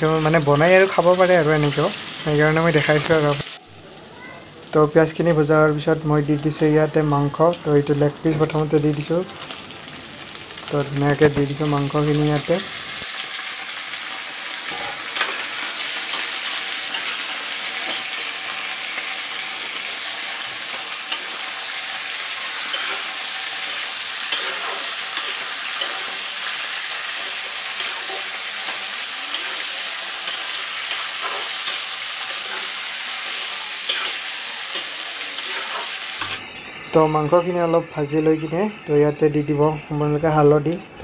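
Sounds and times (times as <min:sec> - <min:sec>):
chicken sizzling in hot oil: 0:00.0 - 0:39.6
metal spatula scraping a pan: 0:14.5 - 0:36.4.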